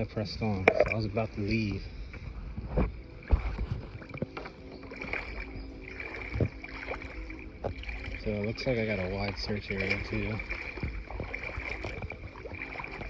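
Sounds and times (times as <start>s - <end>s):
kayak paddling on water: 0.0s - 13.0s
sharp knocks on hull: 9.9s - 13.0s.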